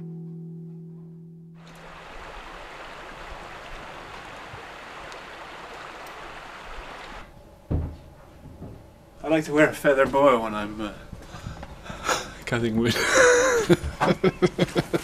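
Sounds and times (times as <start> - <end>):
outdoor background hiss: 0.0 - 15.0
low thump: 7.7 - 8.9.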